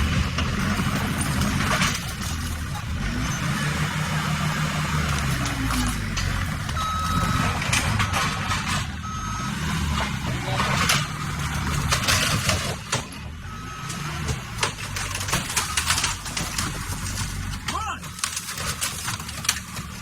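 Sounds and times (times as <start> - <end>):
knocks and clattering: 0.0 - 20.0
loader engine running: 0.0 - 20.0
back-up alarm beeping: 5.2 - 11.0, 13.4 - 16.7.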